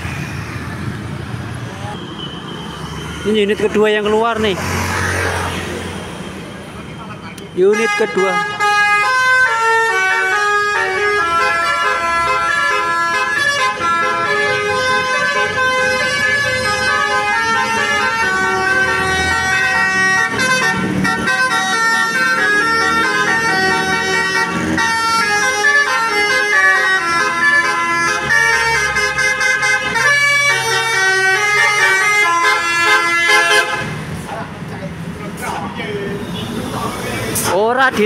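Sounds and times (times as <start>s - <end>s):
bus engine: 0.0s - 38.0s
bus musical horn tune: 7.7s - 34.0s.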